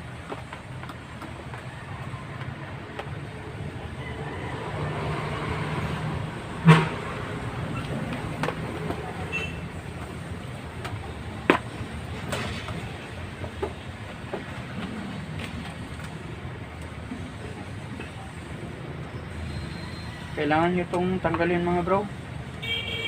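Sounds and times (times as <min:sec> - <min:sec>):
clicks and knocks of fan parts: 0:00.0 - 0:01.8, 0:07.8 - 0:09.0, 0:10.0 - 0:16.2
traffic rumble: 0:00.0 - 0:23.0.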